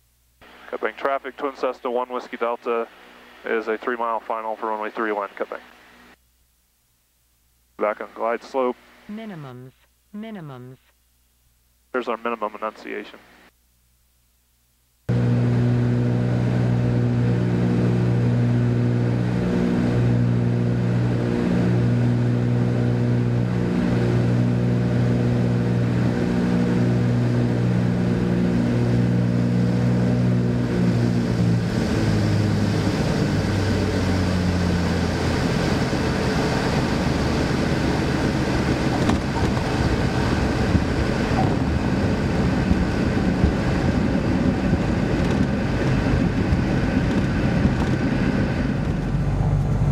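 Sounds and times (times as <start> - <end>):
aircraft piston engines droning: 15.1 - 49.9
rough rushing noise: 15.1 - 49.9.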